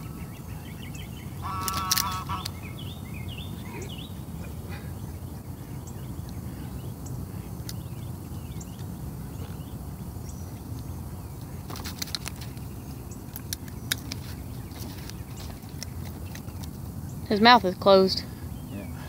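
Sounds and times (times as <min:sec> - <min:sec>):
low outdoor rumble: 0:00.0 - 0:19.0
small birds chirping: 0:00.0 - 0:19.0.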